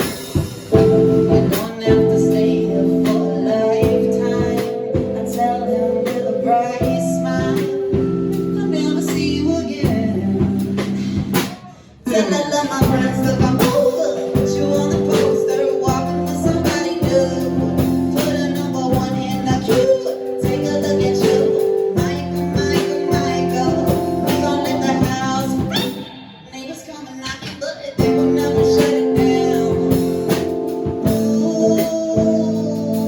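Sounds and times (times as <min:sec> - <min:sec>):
electric guitar: 0:00.0 - 0:11.5, 0:28.0 - 0:33.0
live band playing: 0:00.0 - 0:12.0, 0:12.7 - 0:26.7, 0:27.4 - 0:33.0
drum kit: 0:00.0 - 0:26.5, 0:27.3 - 0:33.0
person singing: 0:00.0 - 0:33.0.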